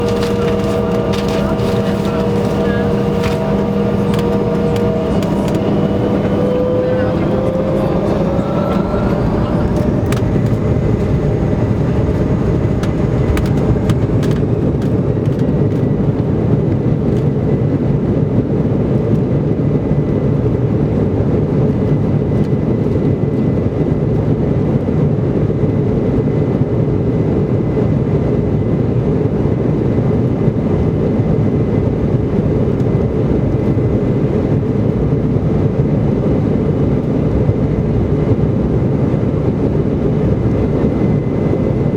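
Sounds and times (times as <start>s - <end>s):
sharp clicks and rattles: 0.0s - 6.5s, 7.4s - 15.8s
jet engines roaring: 0.0s - 17.2s
jet engine whine: 0.0s - 41.9s.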